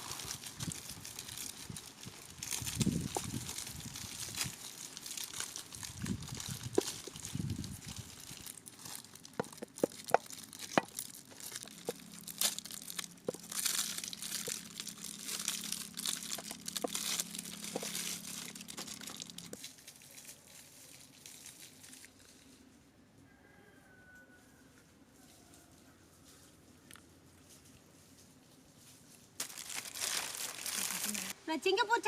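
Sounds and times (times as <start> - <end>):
chocolate wrappers crinkling: 0.0 - 22.5, 29.4 - 31.4
steady low hum: 10.2 - 19.6.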